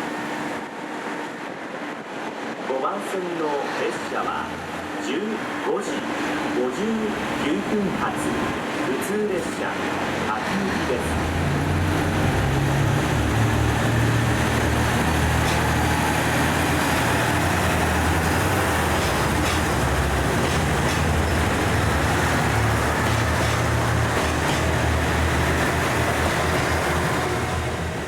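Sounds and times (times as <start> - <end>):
diesel engine droning: 6.8 - 28.0.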